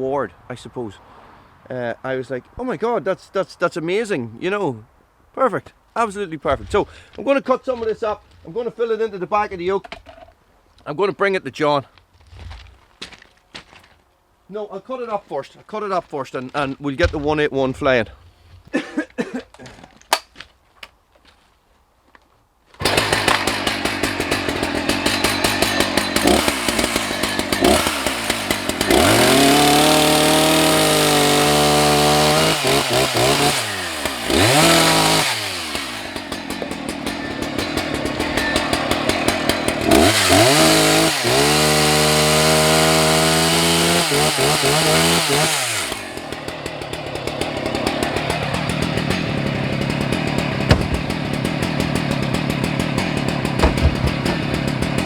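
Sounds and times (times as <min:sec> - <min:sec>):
chainsaw idling and revving: 0:22.8 - 0:55.0.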